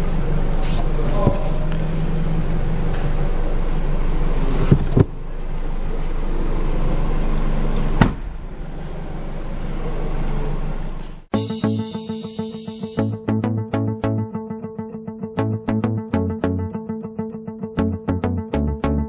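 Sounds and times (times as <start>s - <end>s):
car engine running: 0.0s - 10.9s
music with plucked guitar: 11.3s - 19.0s.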